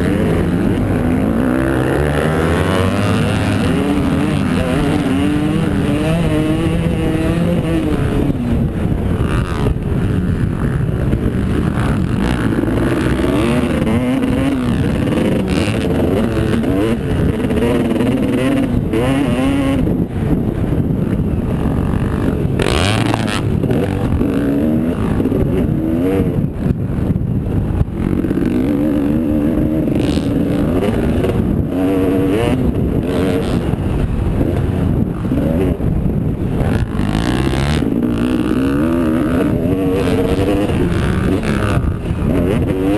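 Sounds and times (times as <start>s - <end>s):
motocross bike engines revving: 0.0s - 42.9s.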